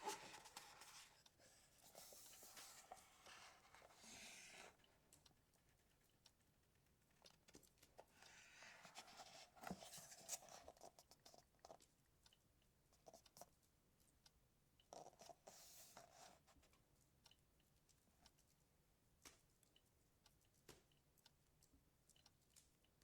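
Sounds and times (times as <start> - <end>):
book pages rustling: 0.0 - 4.8, 8.5 - 11.0.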